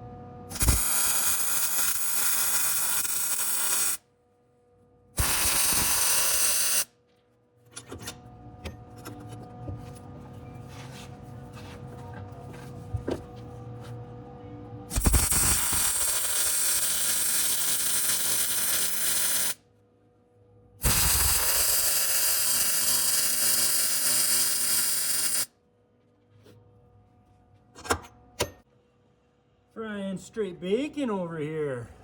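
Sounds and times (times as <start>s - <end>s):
welding arc crackling sizzle: 0.5s - 4.0s, 5.2s - 6.9s, 14.9s - 19.6s, 20.8s - 25.5s.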